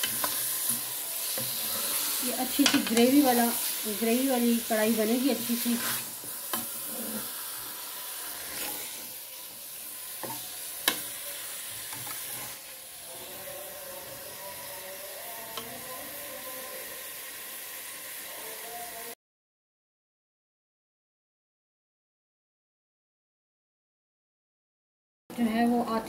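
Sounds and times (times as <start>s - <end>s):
meat sizzling in a pot: 0.0s - 19.2s.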